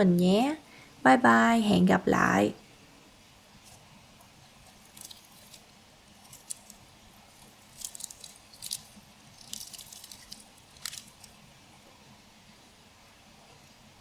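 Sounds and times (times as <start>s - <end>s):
crispy food crunching: 4.6s - 11.4s.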